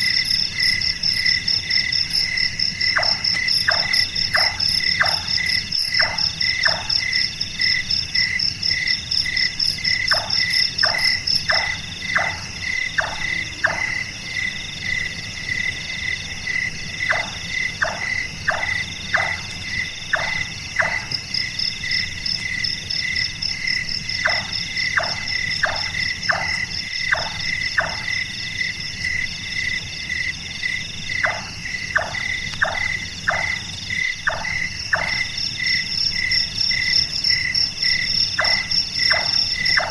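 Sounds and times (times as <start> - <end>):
insects trilling: 0.0 - 39.9
nightjar calling hollow chonk notes: 2.9 - 7.0, 10.0 - 14.0.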